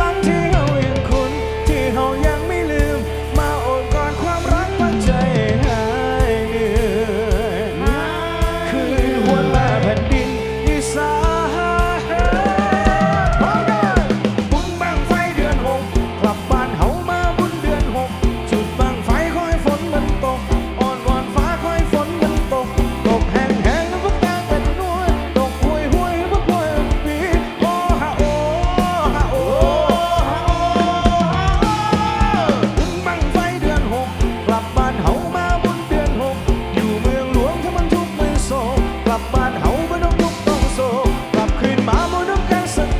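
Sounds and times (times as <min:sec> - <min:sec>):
drum kit steady beat: 0:00.0 - 0:42.9
gliding melodic lead line: 0:00.0 - 0:42.9.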